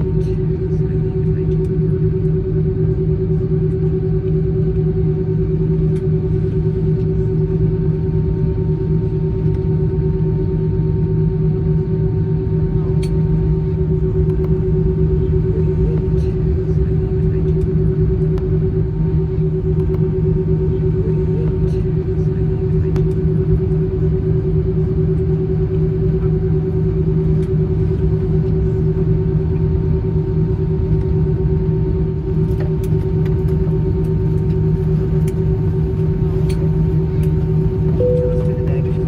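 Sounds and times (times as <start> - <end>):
aircraft cabin drone: 0.0 - 39.0
steady higher tone: 38.0 - 39.0.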